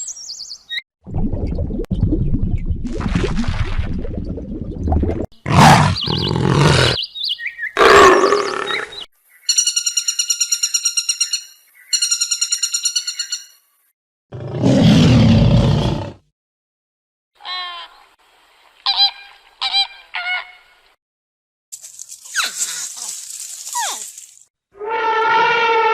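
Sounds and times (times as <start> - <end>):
animal roaring and growling: 5.4 - 7.0, 7.8 - 8.9, 14.3 - 16.2.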